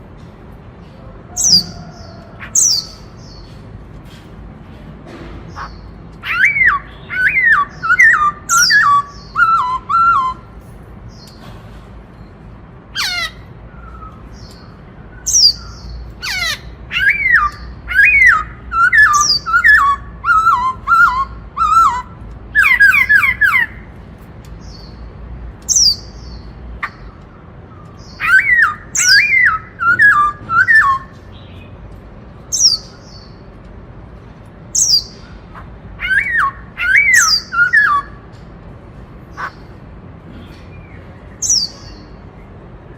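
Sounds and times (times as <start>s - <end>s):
thin high bird calls: 5.5s - 11.4s, 25.7s - 31.8s, 34.7s - 38.3s
bird singing whistled notes: 6.2s - 10.5s, 16.9s - 23.7s, 28.0s - 31.7s, 36.0s - 38.2s.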